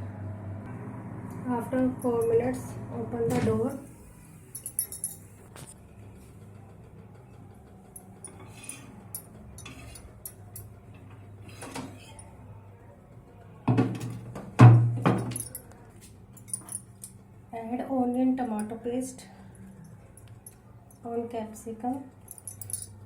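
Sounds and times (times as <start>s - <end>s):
low steady hum: 0.0s - 6.8s.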